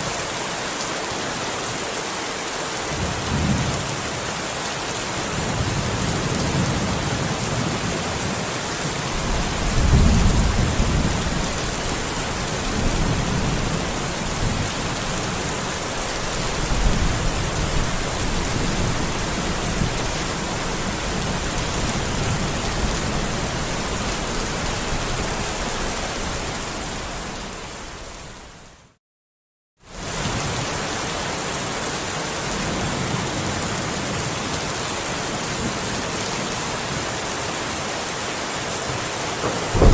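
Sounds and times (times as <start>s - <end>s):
steady rain: 0.0s - 29.0s, 29.8s - 39.9s
low rolls of thunder: 9.1s - 26.2s, 39.4s - 39.9s.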